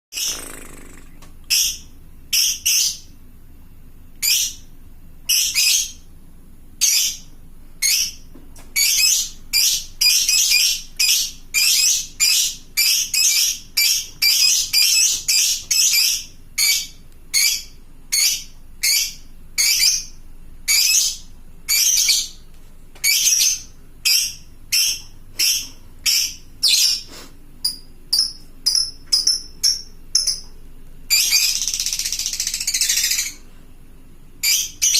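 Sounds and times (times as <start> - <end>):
lovebird shrill chattering calls: 31.1 - 33.4.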